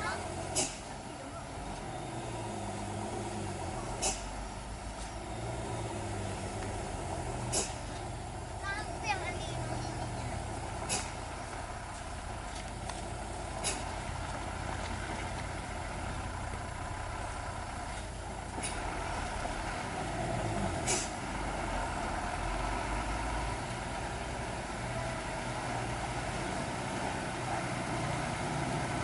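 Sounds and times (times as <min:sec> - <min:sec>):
truck engine running: 0:00.0 - 0:29.0
air brake hisses: 0:00.5 - 0:00.8, 0:04.0 - 0:04.3, 0:10.9 - 0:11.2, 0:20.8 - 0:21.2.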